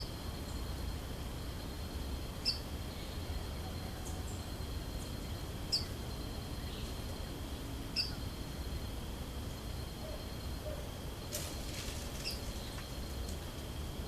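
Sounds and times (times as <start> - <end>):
small birds chipping: 1.6 - 13.8.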